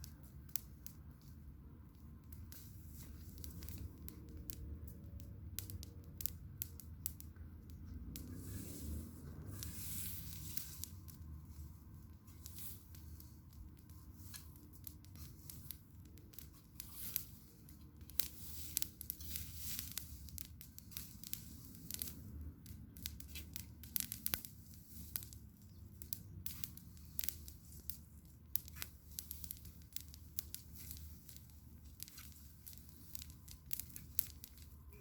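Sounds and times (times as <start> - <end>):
bonfire crackling and popping: 0.0 - 35.0
low fire rumble: 0.0 - 35.0.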